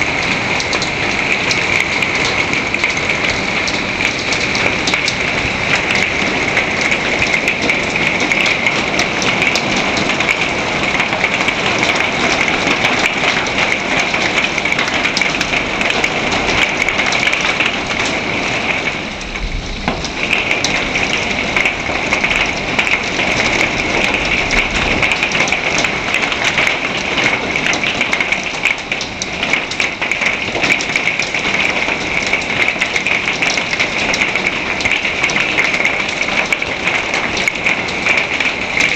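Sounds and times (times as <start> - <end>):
heavy rain and hail pelting: 0.0 - 38.9
low thunder rumble: 14.2 - 26.6.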